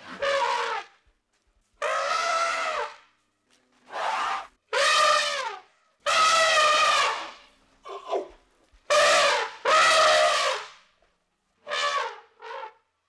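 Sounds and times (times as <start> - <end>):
elephant trumpeting: 0.0 - 0.9, 1.8 - 2.9.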